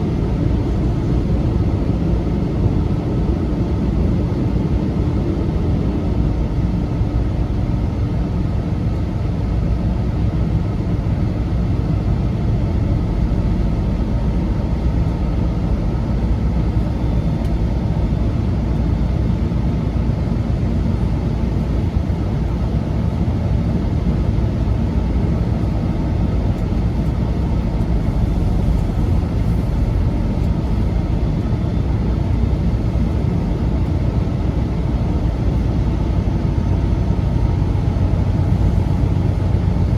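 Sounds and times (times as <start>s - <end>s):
truck engine and road drone: 0.0s - 39.9s.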